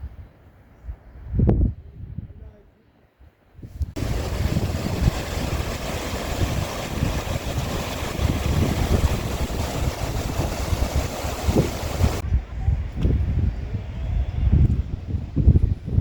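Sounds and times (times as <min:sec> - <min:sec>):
wind buffeting the microphone: 0:00.0 - 0:02.6, 0:03.5 - 0:16.0
mountain stream rushing: 0:04.0 - 0:12.2.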